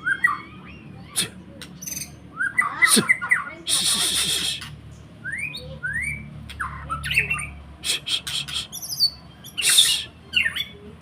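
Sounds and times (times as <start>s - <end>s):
bird whistling: 1.8s - 10.7s
bird rasping squawks: 2.4s - 4.8s, 6.6s - 10.6s.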